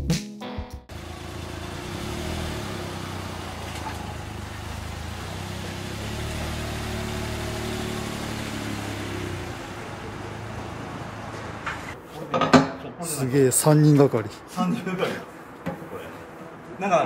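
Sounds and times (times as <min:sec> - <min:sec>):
car engine running at low revs: 0:00.9 - 0:12.0.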